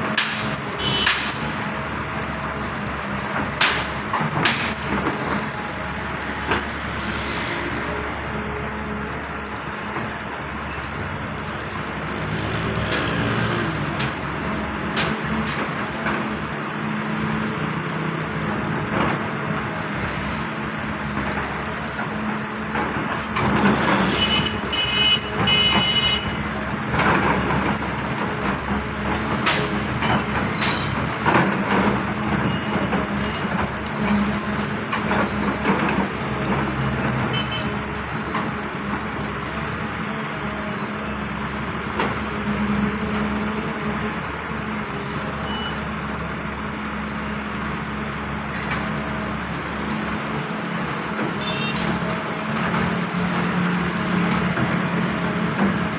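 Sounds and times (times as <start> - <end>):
diesel construction machinery running: 0.0 - 55.9
high squeal: 10.6 - 12.4, 32.5 - 35.6, 38.1 - 39.4, 45.1 - 48.0.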